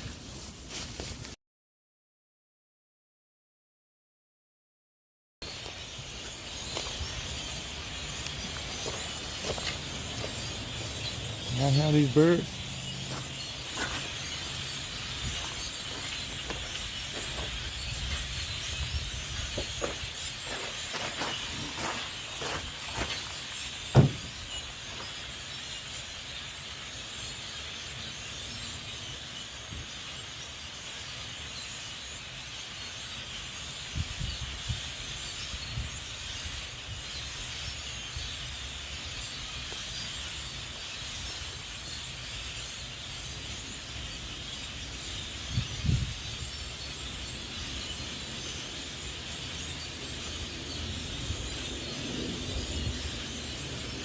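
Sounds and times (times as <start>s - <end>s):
outdoor background hiss: 5.5s - 54.0s
sharp low thump: 23.9s - 24.5s
soft low bumps: 23.9s - 24.6s.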